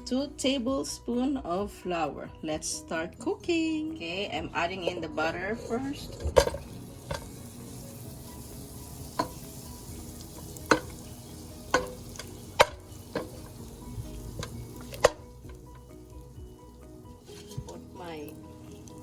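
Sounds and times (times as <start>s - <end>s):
utensil knocking on cooking pot: 6.3s - 7.4s, 9.1s - 9.6s, 10.3s - 15.8s.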